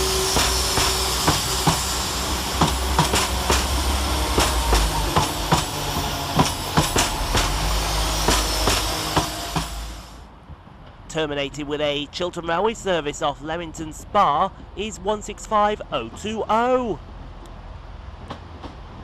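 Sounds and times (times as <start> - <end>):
train wheels clicking over rail joints: 0.0 - 10.0, 14.5 - 19.0
diesel train engines droning: 0.0 - 19.0.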